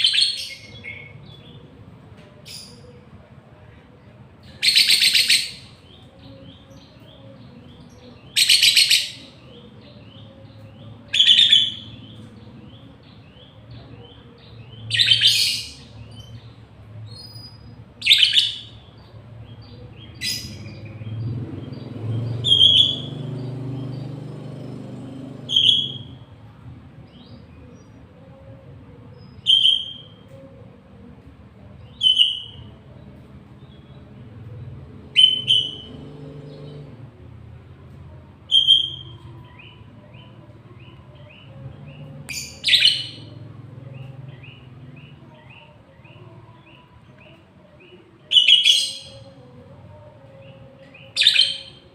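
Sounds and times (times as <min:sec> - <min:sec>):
songbirds chattering: 0:00.0 - 0:26.4, 0:38.1 - 0:51.9
high bird chirps: 0:22.2 - 0:24.1, 0:35.2 - 0:36.0.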